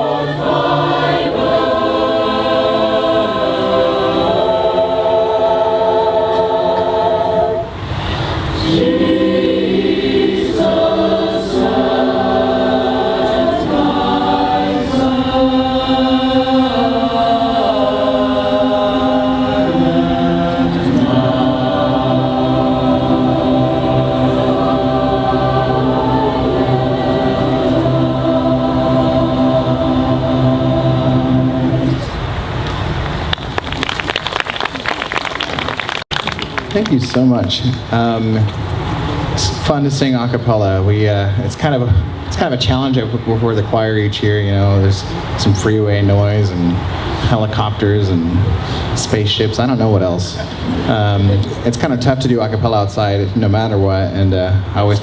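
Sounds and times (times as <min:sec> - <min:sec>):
choir singing a cappella: 0:00.0 - 0:32.6.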